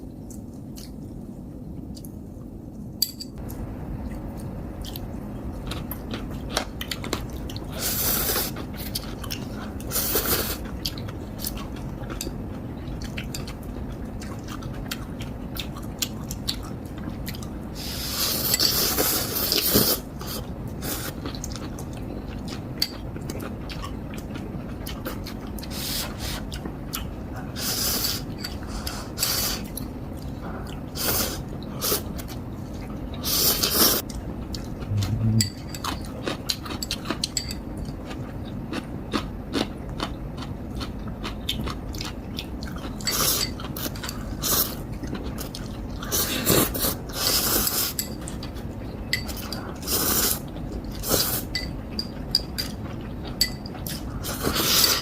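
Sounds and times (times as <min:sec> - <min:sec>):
chewing: 0:08.3 - 0:17.6, 0:18.2 - 0:27.2, 0:33.6 - 0:55.0.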